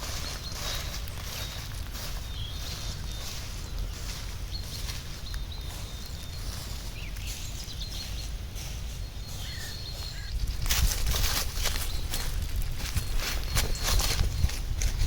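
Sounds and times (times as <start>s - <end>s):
faint bird chirps: 0.0s - 10.6s
low wind rumble: 0.0s - 15.0s.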